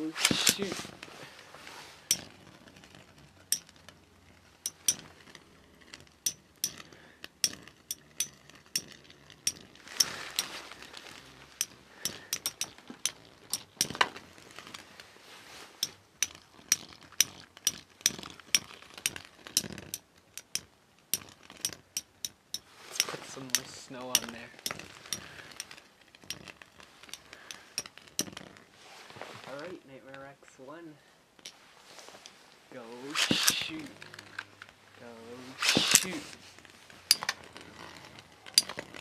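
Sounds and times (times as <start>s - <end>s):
spinning tops clashing: 35.6s - 36.2s.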